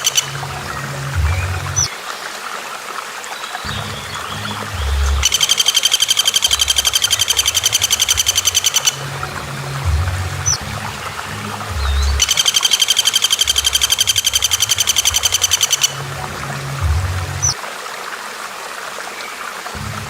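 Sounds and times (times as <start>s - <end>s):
background music with bass: 0.0s - 2.0s, 3.7s - 5.4s, 6.5s - 12.4s, 13.4s - 17.6s, 19.8s - 20.0s
high bird chirp: 3.4s - 9.0s, 11.8s - 16.0s
songbird rattling trill: 4.1s - 9.0s, 11.8s - 16.0s.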